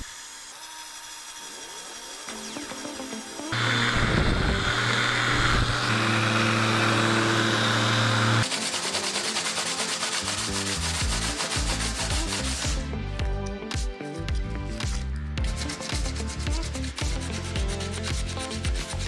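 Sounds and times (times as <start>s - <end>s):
electric sander on wood: 0.0s - 12.9s
rhythmic hand rubbing strokes: 5.8s - 12.9s, 14.4s - 19.0s.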